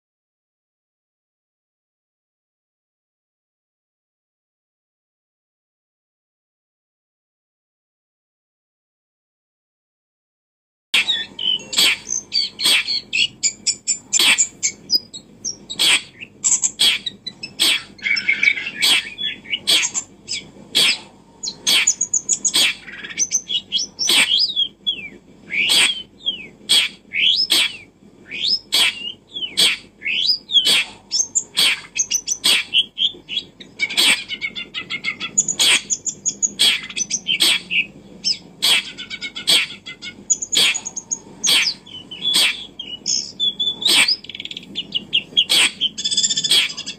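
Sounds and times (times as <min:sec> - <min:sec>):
small birds chirping and twittering: 0:11.0 - 0:46.9.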